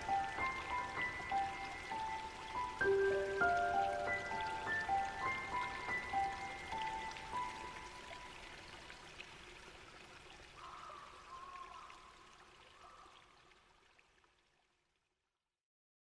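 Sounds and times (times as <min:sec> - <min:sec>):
soft ambient piano: 0:00.0 - 0:08.6
rain: 0:00.0 - 0:15.0
trickling water: 0:00.0 - 0:15.4.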